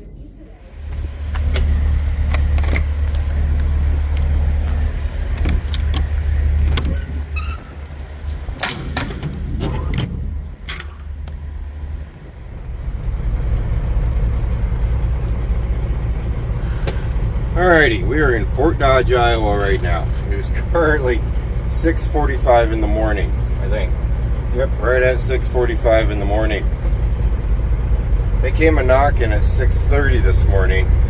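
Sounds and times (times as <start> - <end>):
truck diesel engine rumbling: 0.0 - 31.0.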